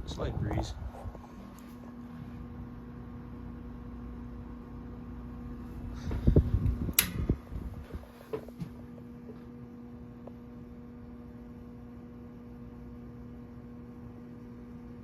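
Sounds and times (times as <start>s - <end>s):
box fan electric buzz: 0.0s - 15.0s
sharp click: 6.9s - 7.3s.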